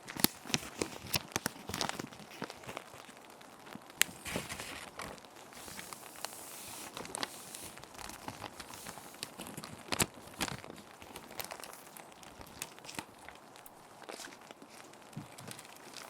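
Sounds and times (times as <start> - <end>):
plastic sheet protectors crinkling: 0.0 - 16.0
rain hissing: 4.1 - 9.4.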